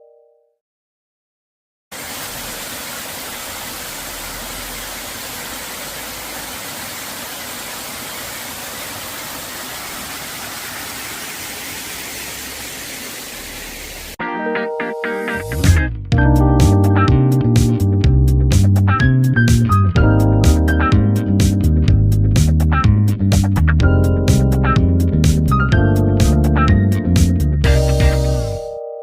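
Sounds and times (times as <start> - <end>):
running water rushing: 1.9 - 14.2.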